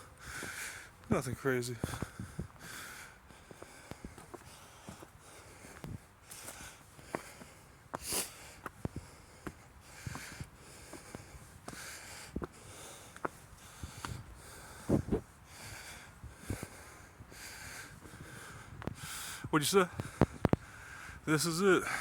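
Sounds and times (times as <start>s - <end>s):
person breathing: 0.0s - 1.0s, 1.8s - 22.0s
footsteps: 1.8s - 2.6s.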